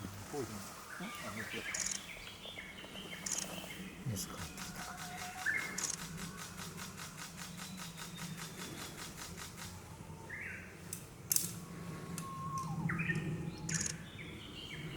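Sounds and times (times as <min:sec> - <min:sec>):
bird sliding call notes: 0:13.7 - 0:14.0.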